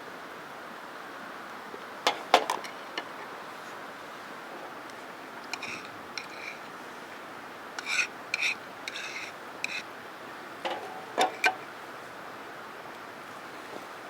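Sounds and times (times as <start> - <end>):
rasping scrapes: 5.6 - 6.6, 7.8 - 9.8.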